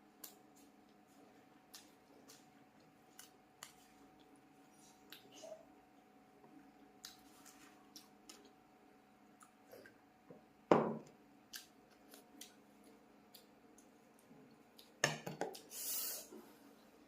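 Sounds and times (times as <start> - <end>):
mouth clicks and chewing: 1.6 - 5.4, 6.8 - 8.6, 9.3 - 10.0, 11.5 - 15.0.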